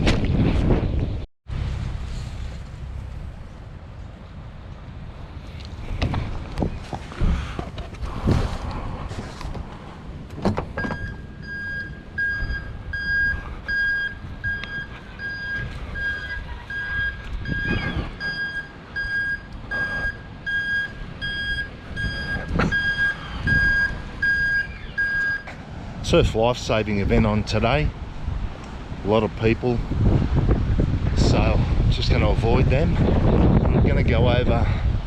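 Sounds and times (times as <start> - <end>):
low rumble: 0.4 - 25.1
reversing beeper: 10.8 - 25.5.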